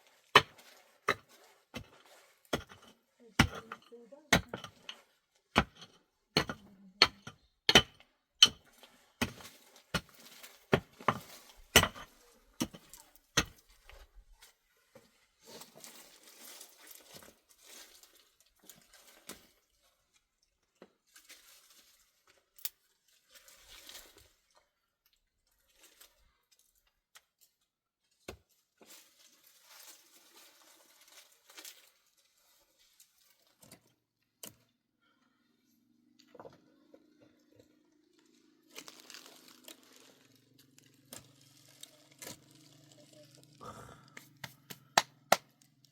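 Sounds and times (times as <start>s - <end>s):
hard objects knocking and clinking: 5.6s - 8.6s.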